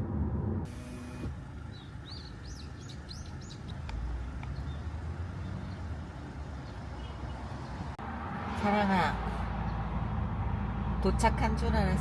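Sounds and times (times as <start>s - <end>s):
songbird chirping: 1.4s - 7.8s.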